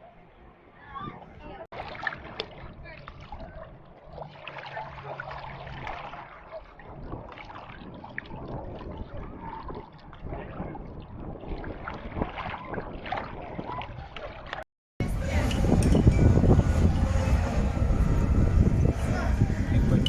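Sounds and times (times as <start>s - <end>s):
sea water splashing: 1.7s - 20.0s
wind buffeting microphone: 5.3s - 14.4s, 15.0s - 20.0s.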